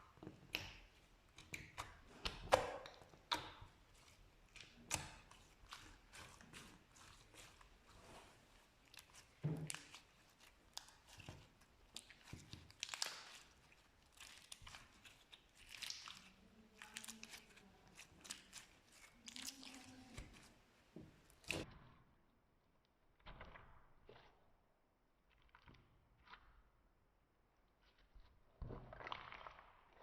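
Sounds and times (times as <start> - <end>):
slime crackling and popping: 8.8 - 20.5.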